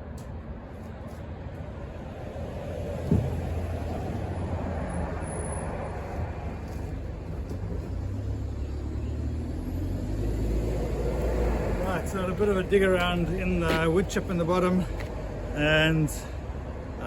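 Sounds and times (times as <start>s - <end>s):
motor vehicle rumble: 0.0s - 17.0s
sharp thump: 3.0s - 3.6s.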